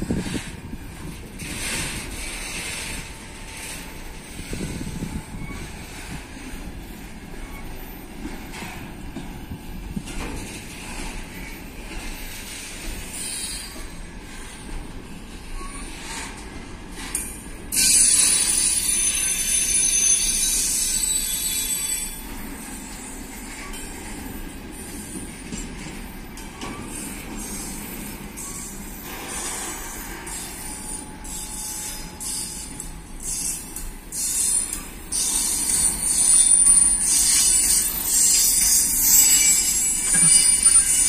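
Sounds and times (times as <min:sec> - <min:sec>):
freight train wheels rumbling: 0:00.0 - 0:41.0
high-pitched metal squeal: 0:17.7 - 0:22.4, 0:28.4 - 0:41.0.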